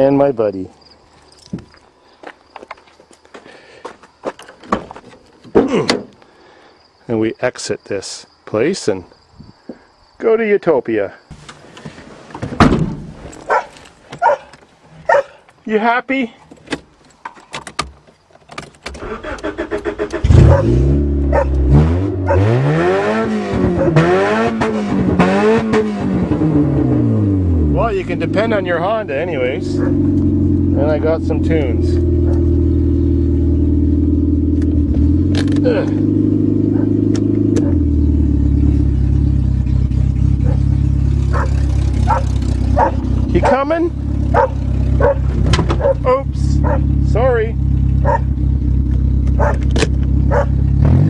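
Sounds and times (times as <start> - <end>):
car engine starting and revving: 18.9 - 51.0.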